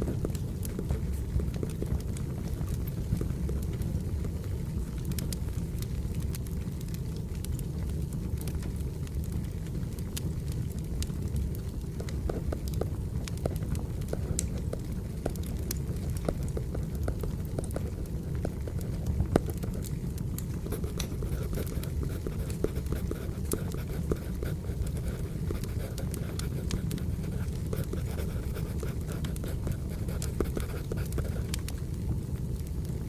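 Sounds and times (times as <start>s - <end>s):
wood fire crackling: 0.0s - 33.0s
pencil scratching on paper: 20.7s - 31.4s.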